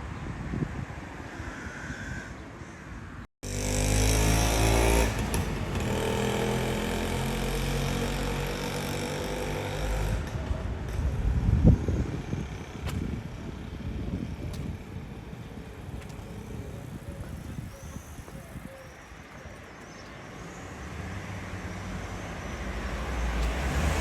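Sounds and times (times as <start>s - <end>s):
wind buffeting microphone: 0.0s - 2.6s, 8.9s - 19.7s.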